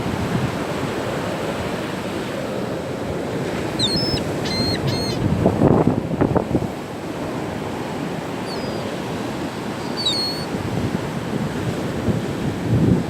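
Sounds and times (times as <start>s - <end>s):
surf: 0.0s - 13.0s
wind buffeting microphone: 0.0s - 13.0s
seagull calls: 3.7s - 5.2s, 8.4s - 10.7s.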